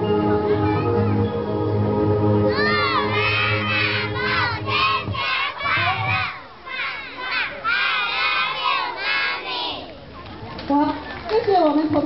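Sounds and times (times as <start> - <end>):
backing music: 0.0 - 9.4
children shouting and cheering: 2.5 - 10.1.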